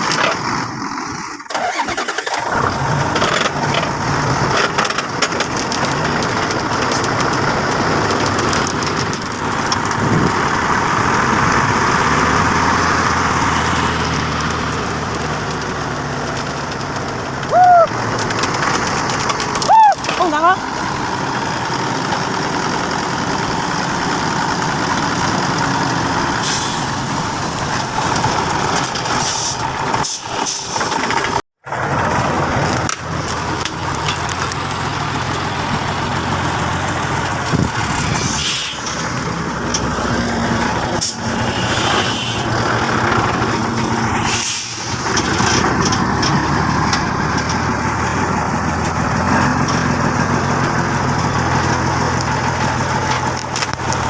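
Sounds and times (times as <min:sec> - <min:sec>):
truck engines under load: 0:00.0 - 0:54.0
short air hisses: 0:26.4 - 0:26.9, 0:41.0 - 0:42.5, 0:44.2 - 0:45.0.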